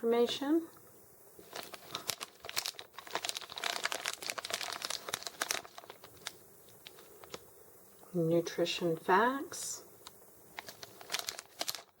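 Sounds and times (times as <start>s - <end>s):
plastic candy wrapper crinkling: 1.4s - 7.4s, 10.0s - 12.0s.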